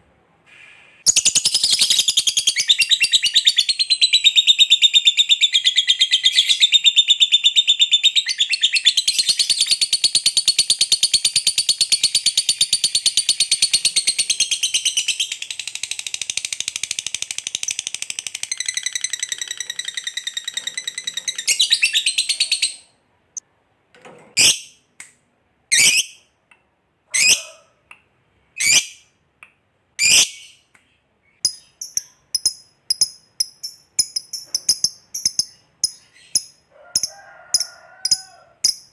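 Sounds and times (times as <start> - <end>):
lovebird chattering trill: 31.4 - 38.9.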